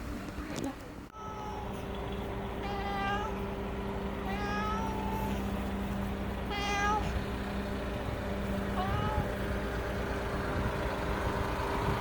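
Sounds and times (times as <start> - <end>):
cat meowing: 1.2 - 1.8, 2.6 - 3.4, 4.2 - 5.5, 6.4 - 7.2, 8.7 - 9.4.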